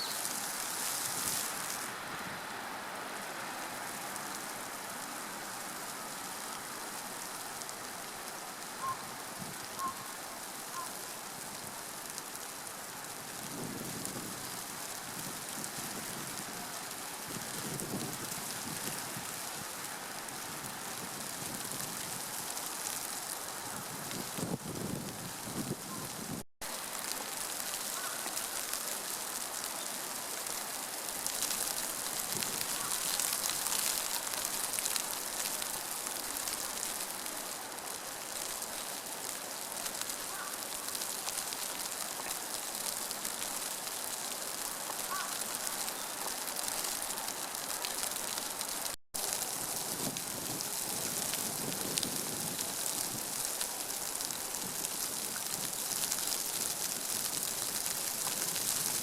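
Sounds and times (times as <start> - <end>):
water hissing: 0.0 - 2.0.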